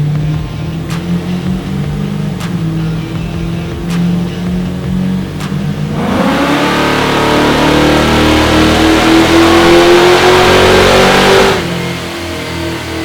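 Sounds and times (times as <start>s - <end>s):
engine revving at full throttle: 0.0s - 13.0s.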